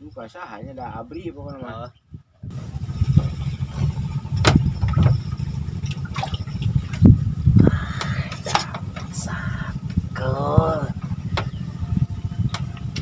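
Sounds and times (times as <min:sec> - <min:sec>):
water splashes: 0:02.6 - 0:07.2.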